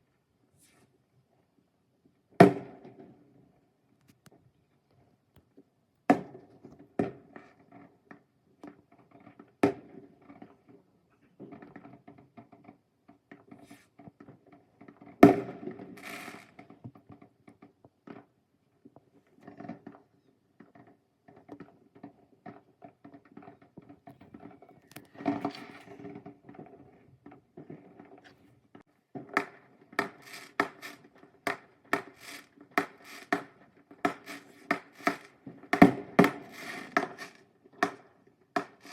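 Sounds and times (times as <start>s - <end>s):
fireworks bangs and pops: 15.0s - 17.2s, 23.2s - 38.9s
fireworks crackling hiss: 16.0s - 16.6s, 30.0s - 31.1s, 32.0s - 33.4s, 34.1s - 35.3s, 36.3s - 37.4s.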